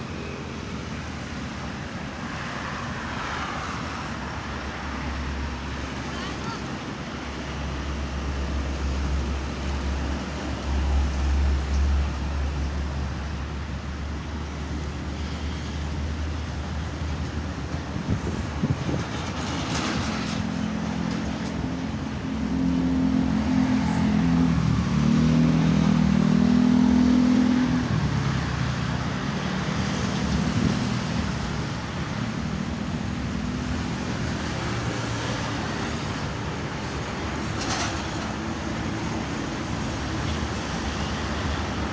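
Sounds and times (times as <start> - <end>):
highway traffic rumble: 0.0 - 41.9
vehicle engine drone passing: 21.0 - 36.3.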